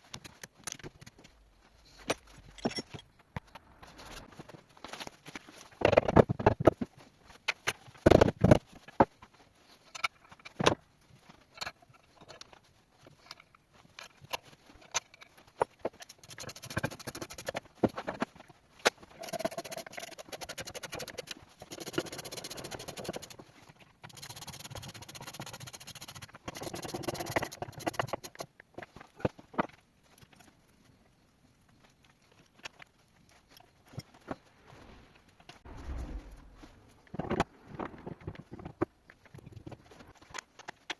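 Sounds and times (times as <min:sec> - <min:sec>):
metal parts and tools clinking: 0:00.0 - 0:03.2.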